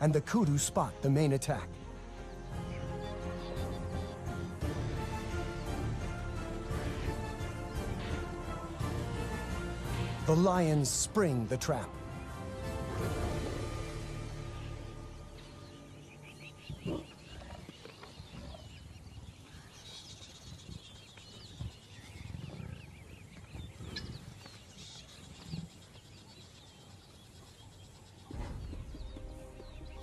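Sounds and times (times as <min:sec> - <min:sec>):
small birds chirping: 0:00.0 - 0:12.8, 0:13.4 - 0:30.0
lionesses growling: 0:16.7 - 0:18.8.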